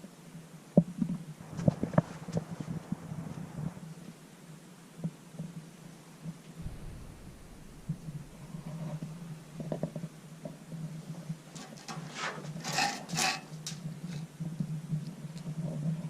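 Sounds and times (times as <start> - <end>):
steady low hum: 6.6 - 11.7.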